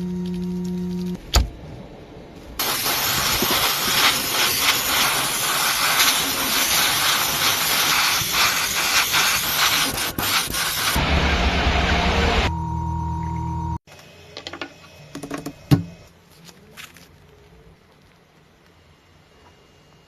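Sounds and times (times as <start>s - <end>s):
loud steady hiss: 2.6s - 11.1s.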